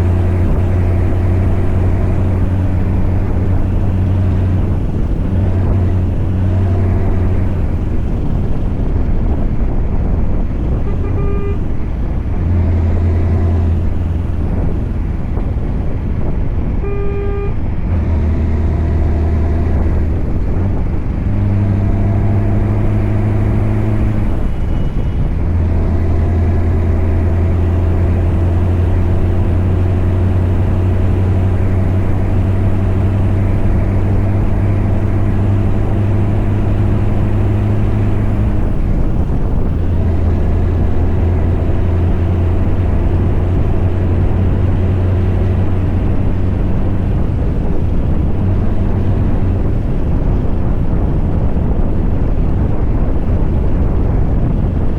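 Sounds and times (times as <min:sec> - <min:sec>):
diesel truck engine under load: 0:00.0 - 0:54.9
brief high beep: 0:10.8 - 0:11.6, 0:16.8 - 0:17.6.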